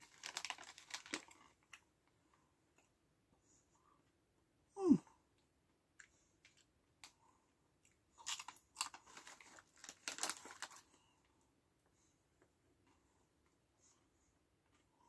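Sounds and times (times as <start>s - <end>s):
crisp packet crackling: 0.0s - 1.8s, 8.2s - 10.9s
crunchy chips being chewed: 0.0s - 1.8s, 8.1s - 10.9s.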